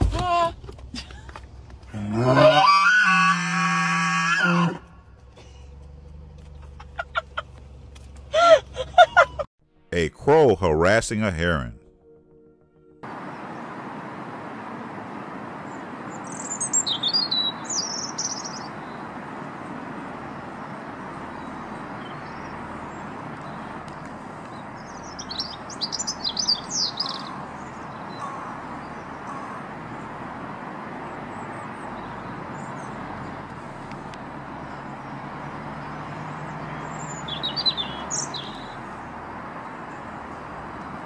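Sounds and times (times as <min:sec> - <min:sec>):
birds chirping rapidly: 0:14.9 - 0:41.0.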